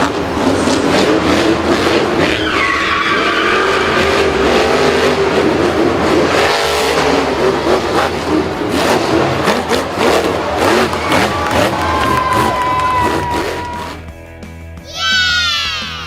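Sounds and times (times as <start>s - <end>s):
vehicle engine revving: 0.0s - 14.1s
tyre squeal: 1.9s - 5.4s, 8.8s - 14.0s.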